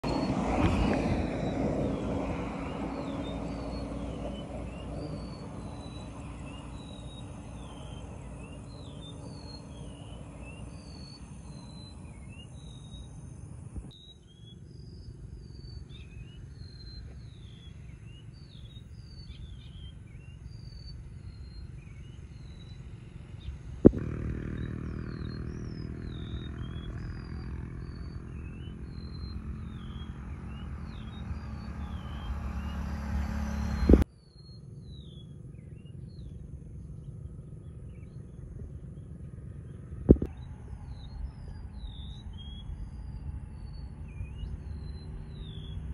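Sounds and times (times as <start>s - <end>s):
bird chirping: 0.0s - 45.9s
low handling rumble: 23.8s - 34.0s.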